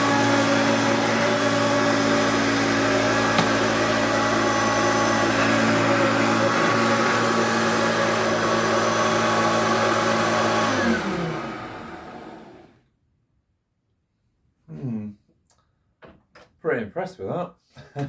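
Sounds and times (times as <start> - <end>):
vacuum cleaner running: 0.0 - 12.8
vacuum motor winding down: 0.0 - 12.8.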